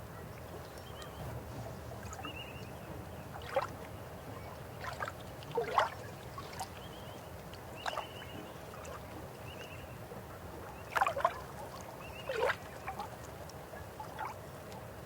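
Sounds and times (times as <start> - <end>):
river water flowing: 1.9 - 15.0
water gurgling and splashing: 4.8 - 6.7, 12.2 - 13.1.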